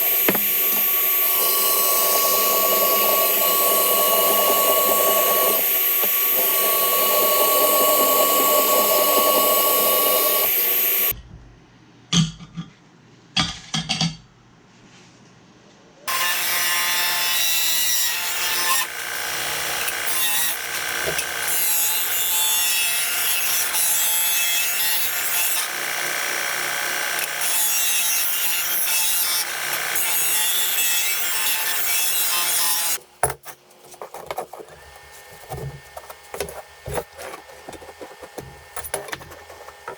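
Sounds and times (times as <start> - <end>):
power tool cutting: 0.0 - 11.1, 16.1 - 33.0.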